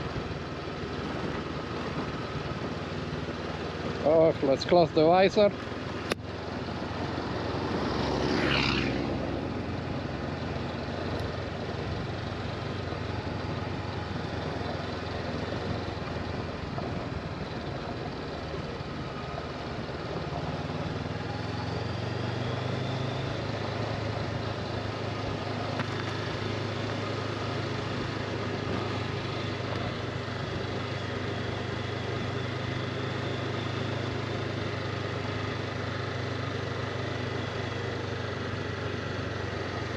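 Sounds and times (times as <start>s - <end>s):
low engine hum: 0.0s - 39.9s
motorcycle engine: 0.0s - 39.9s.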